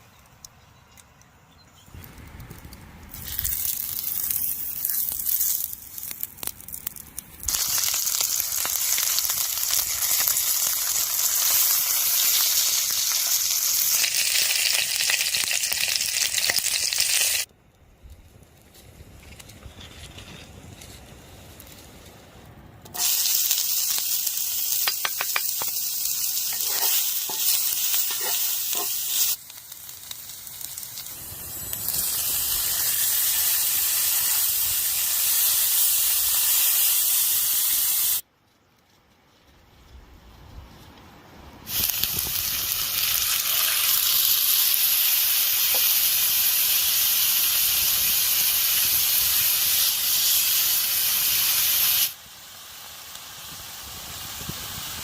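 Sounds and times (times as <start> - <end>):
steady high hiss: 18.8 - 38.3, 40.9 - 55.0.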